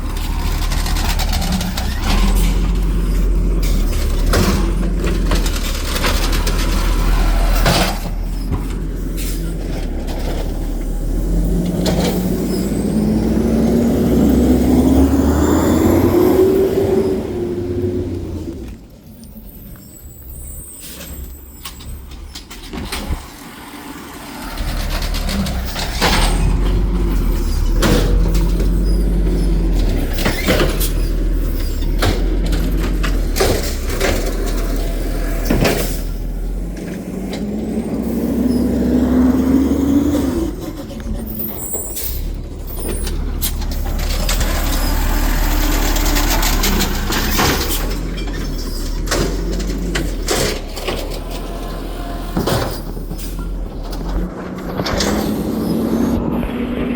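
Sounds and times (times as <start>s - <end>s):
diesel engine rumbling: 0.0s - 56.9s
rising hydraulic tone: 10.7s - 18.8s.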